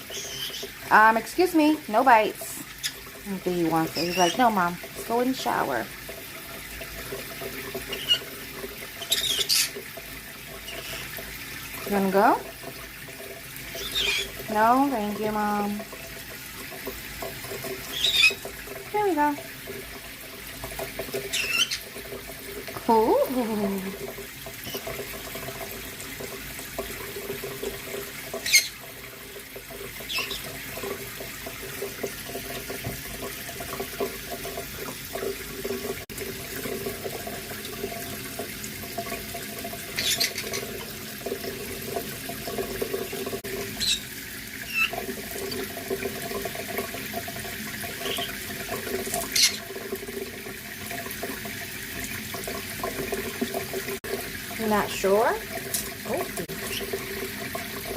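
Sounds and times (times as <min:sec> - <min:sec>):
high chirps or squeaks: 0:00.0 - 0:00.7, 0:09.0 - 0:09.8, 0:21.3 - 0:21.8
tap running into sink: 0:23.9 - 0:44.0, 0:55.5 - 0:57.9.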